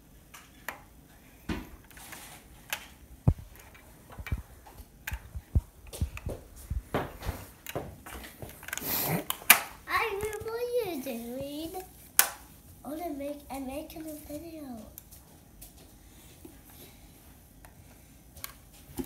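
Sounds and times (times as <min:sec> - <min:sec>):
small objects clicking and tapping: 0:02.7 - 0:06.4.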